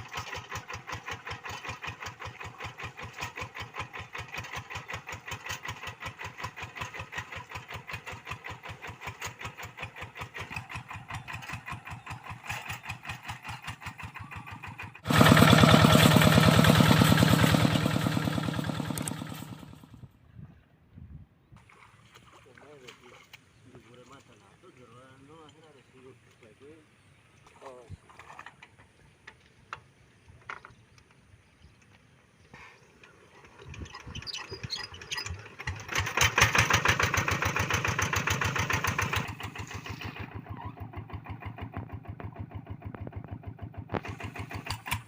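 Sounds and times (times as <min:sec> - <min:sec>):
diesel hand tractor idling: 0:00.0 - 0:20.0, 0:33.0 - 0:45.0.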